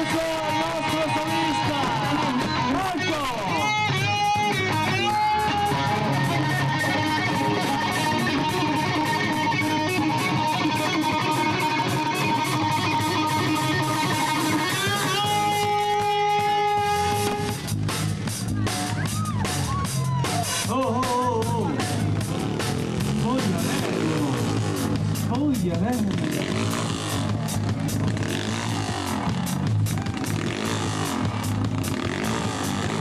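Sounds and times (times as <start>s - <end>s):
drums: 0.0s - 33.0s
electric guitar long bent notes: 0.0s - 33.0s
live rock band playing: 0.0s - 33.0s.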